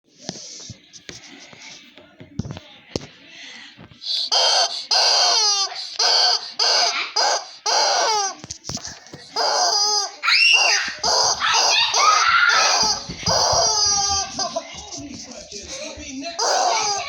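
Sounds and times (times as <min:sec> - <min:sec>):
young child squealing: 0:09.4 - 0:14.3, 0:16.4 - 0:17.0.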